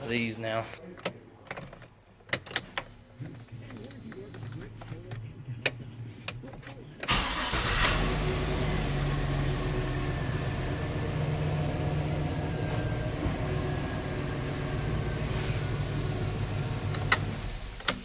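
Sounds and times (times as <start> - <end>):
pickup truck engine idling: 7.1 - 17.8.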